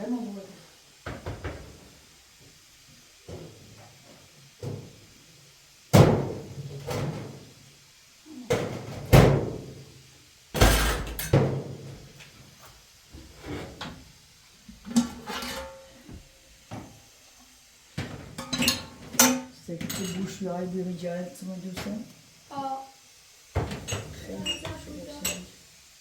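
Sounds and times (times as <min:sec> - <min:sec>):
sharp knocks and bangs: 0:06.0 - 0:07.3.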